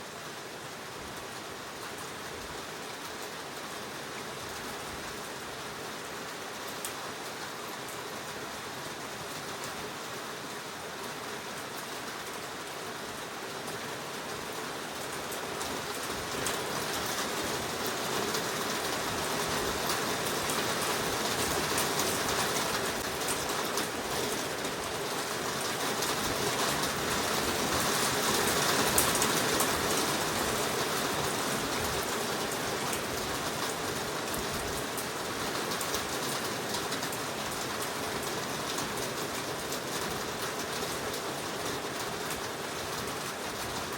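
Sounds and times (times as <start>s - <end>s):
heavy rain in a forest: 0.0s - 43.9s.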